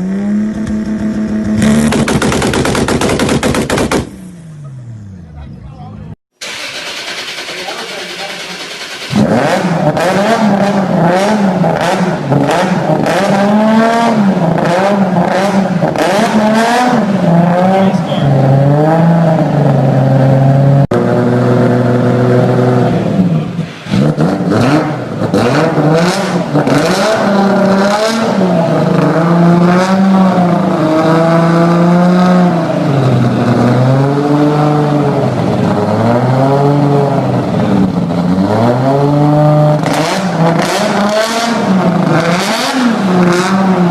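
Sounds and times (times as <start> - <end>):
car engine revving: 0.0 - 43.9
sharp exhaust cracks: 0.6 - 4.3.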